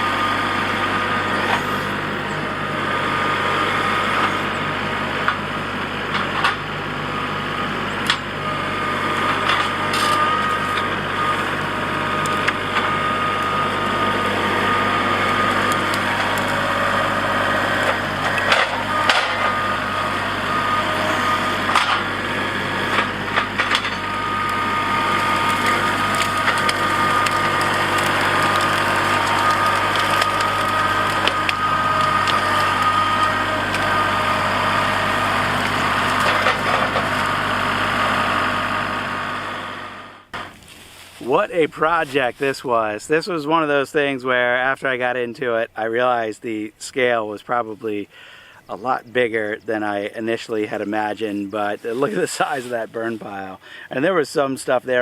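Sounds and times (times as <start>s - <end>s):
tractor diesel engine running: 0.0s - 55.0s
branches cracking and snapping: 8.0s - 37.9s.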